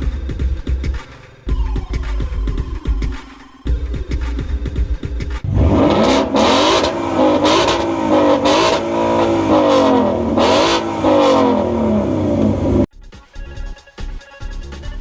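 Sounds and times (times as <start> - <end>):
car engine revving: 5.5 - 12.9.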